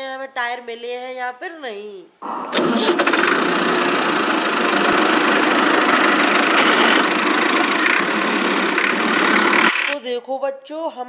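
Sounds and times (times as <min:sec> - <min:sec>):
tractor engine chugging: 0:02.6 - 0:10.0.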